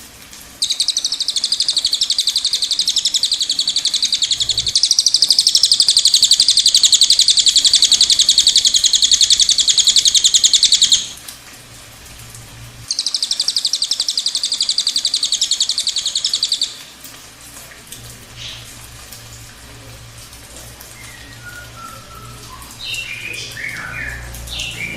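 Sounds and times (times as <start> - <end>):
songbird trilling: 0.6 - 11.1, 12.9 - 16.8, 21.0 - 24.9.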